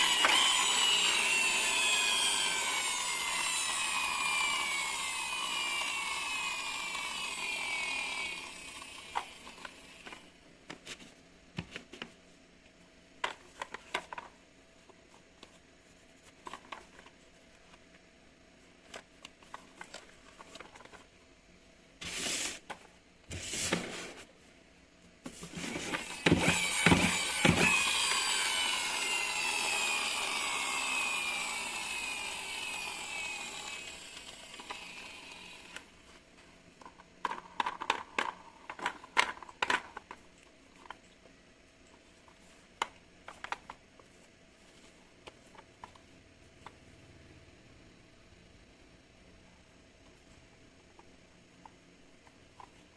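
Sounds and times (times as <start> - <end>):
small electric motor whirring: 0.0 - 10.3, 25.7 - 35.9.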